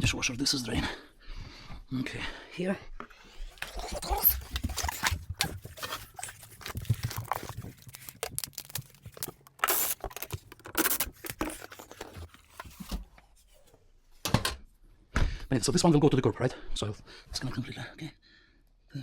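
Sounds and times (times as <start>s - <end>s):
scraping rustling noises: 3.5s - 13.8s.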